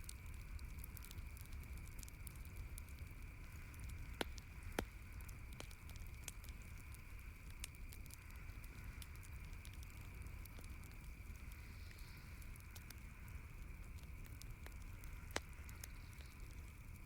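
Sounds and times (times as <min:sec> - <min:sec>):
campfire crackling and popping: 0:00.0 - 0:17.0
low rumble and hiss: 0:00.0 - 0:17.0.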